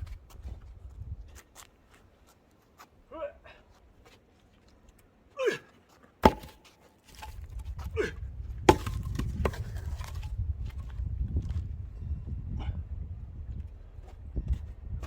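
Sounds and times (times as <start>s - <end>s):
firewood logs knocking together: 6.2s - 10.9s.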